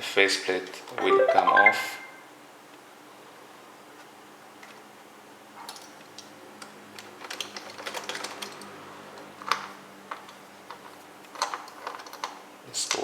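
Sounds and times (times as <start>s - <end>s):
plastic clicks and clatters: 5.7s - 13.0s.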